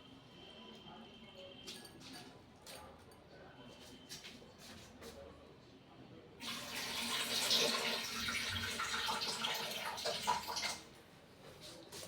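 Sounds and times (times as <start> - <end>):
tap water running and splashing: 6.4 - 10.8.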